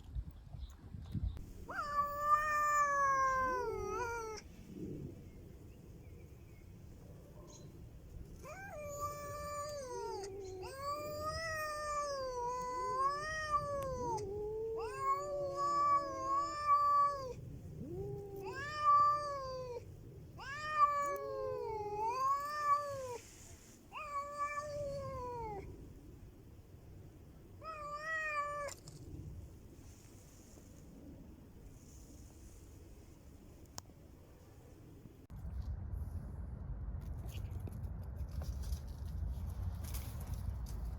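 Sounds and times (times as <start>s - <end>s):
cats yowling: 1.6s - 4.5s, 8.4s - 25.7s, 27.6s - 28.8s.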